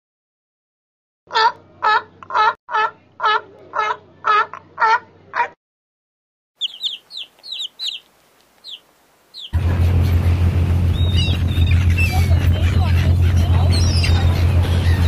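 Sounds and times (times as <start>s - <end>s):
chicks peeping: 6.6s - 15.0s
loud rushing noise with low hum: 9.6s - 15.0s.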